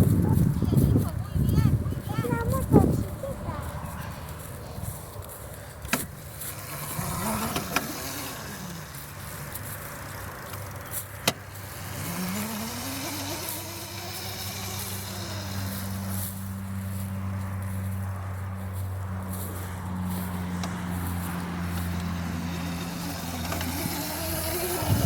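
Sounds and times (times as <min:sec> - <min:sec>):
electric motor whining: 0:05.8 - 0:18.0, 0:19.6 - 0:25.0.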